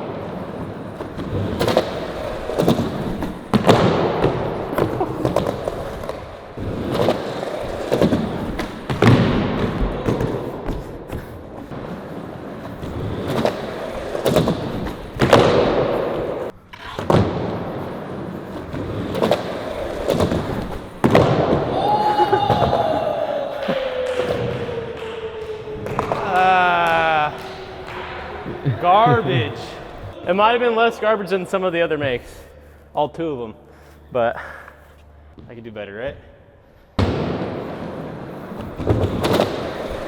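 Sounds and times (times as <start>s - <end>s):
skateboard slapping and tumbling: 0.0s - 23.0s, 37.0s - 40.0s
skateboard wheels rolling: 0.0s - 30.2s, 37.0s - 40.0s.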